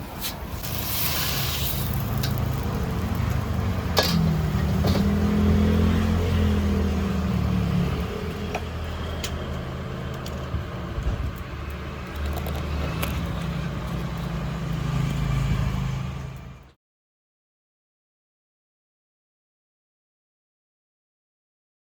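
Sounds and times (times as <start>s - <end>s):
vehicle engine humming: 0.0s - 16.7s
cookware clinking: 3.9s - 5.2s.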